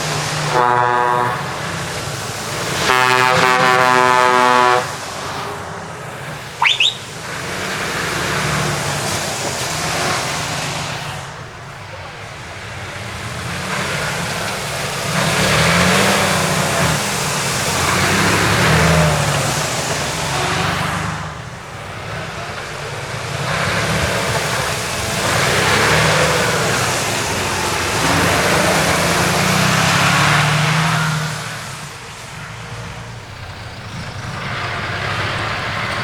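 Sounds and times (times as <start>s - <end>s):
truck air horn blast: 0.0s - 9.1s, 14.1s - 22.2s
heavy truck engines passing: 0.0s - 36.0s
high rising whistle: 6.5s - 7.1s.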